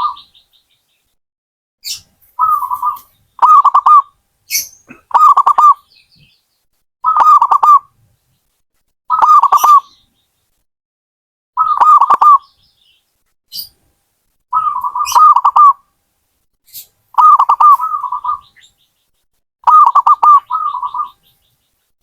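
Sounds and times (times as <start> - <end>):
high bird chirps: 0.0 - 1.1, 1.8 - 7.8, 9.1 - 10.2, 11.6 - 13.8, 14.5 - 15.8, 16.7 - 21.9
dove cooing: 2.4 - 4.1, 4.9 - 5.8, 7.1 - 7.9, 9.1 - 9.9, 11.6 - 12.4, 14.5 - 15.8, 17.2 - 18.6, 19.6 - 21.2.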